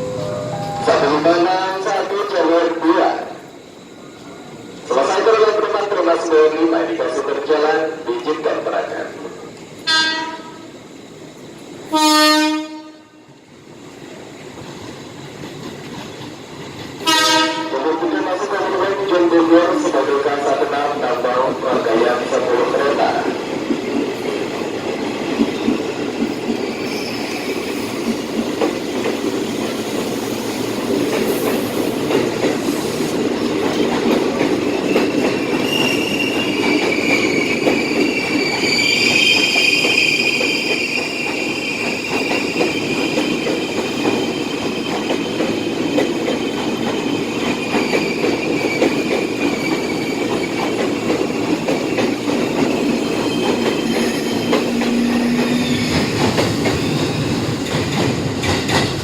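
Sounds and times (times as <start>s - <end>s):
electric train rumbling: 0.0s - 59.0s
high wheel squeal: 26.7s - 28.2s, 35.0s - 44.3s, 53.0s - 56.2s.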